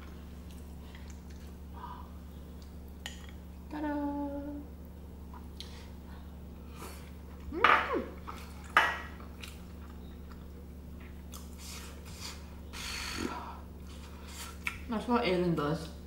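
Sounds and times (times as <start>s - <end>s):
chewing food: 0.0s - 1.6s, 8.2s - 12.4s
steady low hum: 0.0s - 16.0s.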